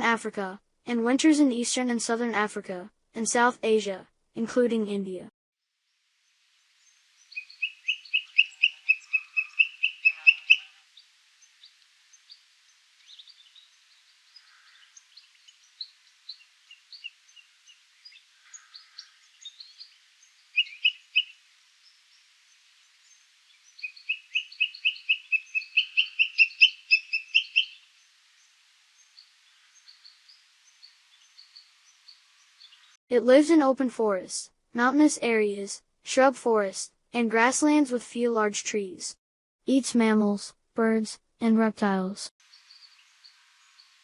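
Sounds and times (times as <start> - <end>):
faint bird chirps: 6.2 - 33.0, 42.4 - 44.0
bird calling shrill repeated notes: 6.8 - 12.4, 13.0 - 21.5, 23.0 - 28.1.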